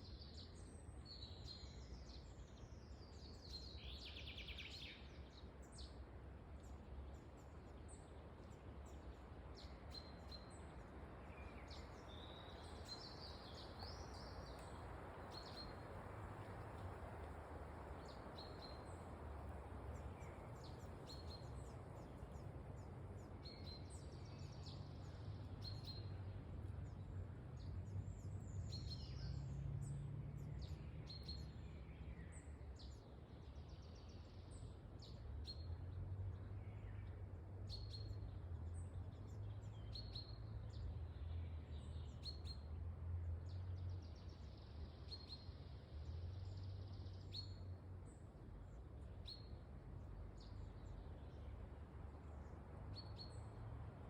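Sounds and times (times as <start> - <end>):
wind in a forest: 0.0 - 54.0
bird chirping: 43.4 - 48.2, 52.2 - 53.6.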